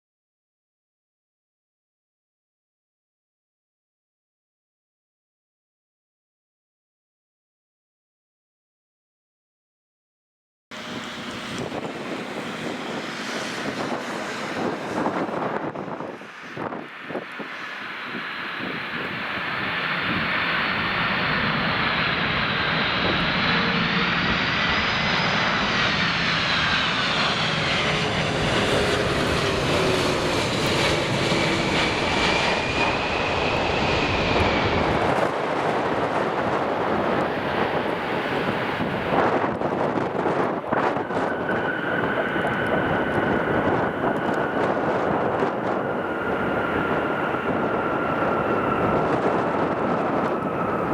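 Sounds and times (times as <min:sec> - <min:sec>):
high engine whine: 0:10.7 - 0:50.9
jet engine rumble: 0:10.7 - 0:50.9.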